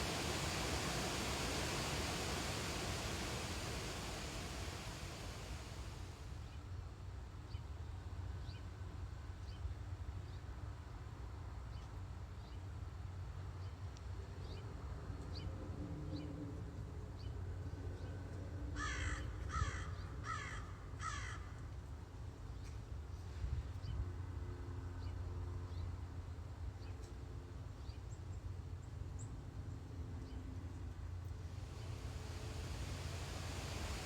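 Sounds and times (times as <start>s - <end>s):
steady low rumble: 0.0s - 6.5s, 31.4s - 34.0s.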